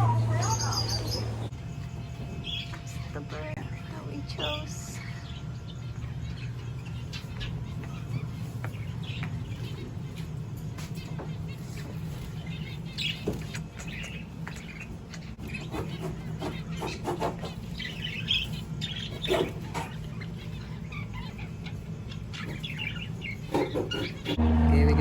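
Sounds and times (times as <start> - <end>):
low hum: 0.0 - 15.4, 24.1 - 25.0
budgerigars chirping: 0.0 - 24.4.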